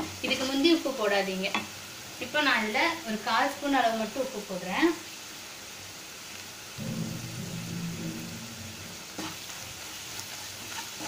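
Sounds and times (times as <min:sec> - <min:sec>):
onions sizzling in oil: 0:00.0 - 0:11.0
low hum: 0:06.8 - 0:09.4
wooden spatula stirring: 0:09.0 - 0:11.0.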